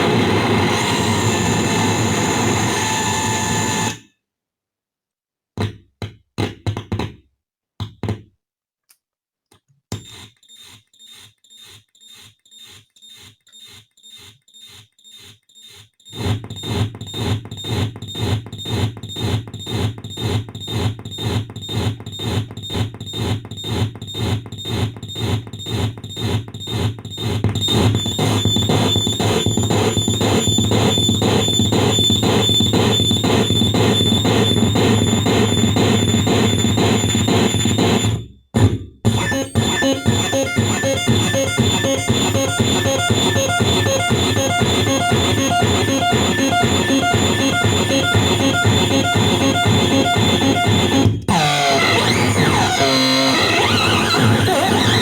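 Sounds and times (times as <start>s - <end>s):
electronic noise pulses: 27.6s - 55.0s
steady high whine: 27.7s - 55.0s.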